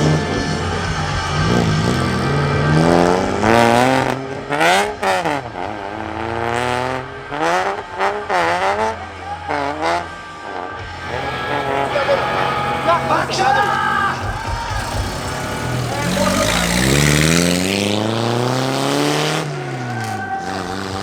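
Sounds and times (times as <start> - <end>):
engine running steadily: 0.0 - 4.6, 10.8 - 18.8
car engine revving: 0.0 - 21.0.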